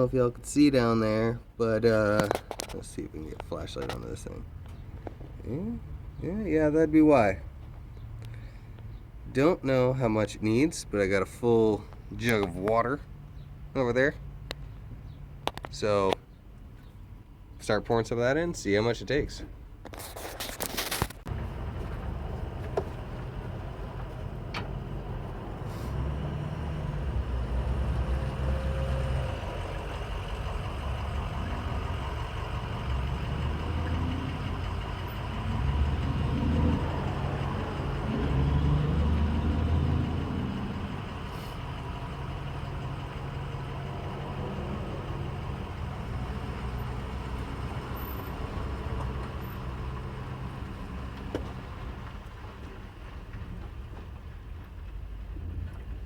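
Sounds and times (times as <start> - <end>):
car engine idling: 21.2 - 56.0.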